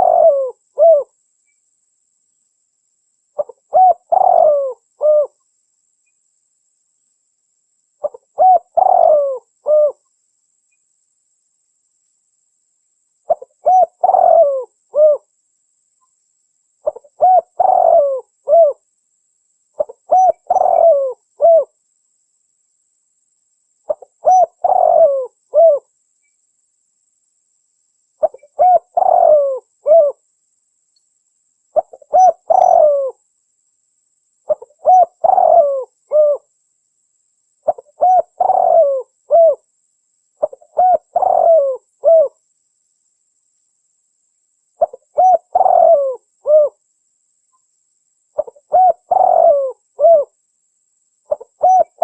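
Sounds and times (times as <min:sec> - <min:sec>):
dove cooing: 0:00.0 - 0:01.1, 0:03.4 - 0:05.4, 0:08.0 - 0:10.0, 0:13.3 - 0:15.3, 0:16.8 - 0:18.8, 0:19.8 - 0:21.8, 0:23.9 - 0:25.9, 0:28.2 - 0:30.2, 0:31.8 - 0:33.2, 0:34.5 - 0:36.5, 0:37.6 - 0:39.6, 0:40.4 - 0:42.4, 0:44.8 - 0:46.8, 0:48.4 - 0:50.4, 0:51.3 - 0:52.0.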